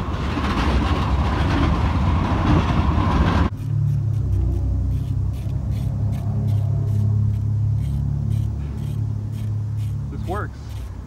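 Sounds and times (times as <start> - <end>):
car engine humming: 2.5 - 11.0.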